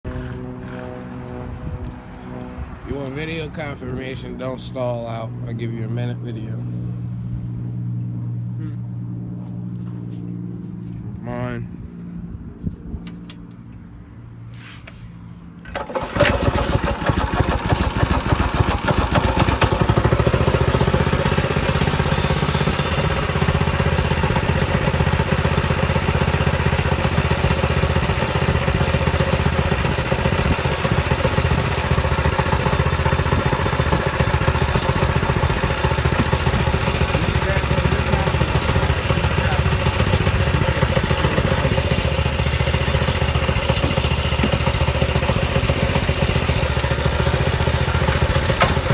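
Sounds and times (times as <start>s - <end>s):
mini bike engine starting and running: 0.1s - 2.0s, 15.6s - 48.9s.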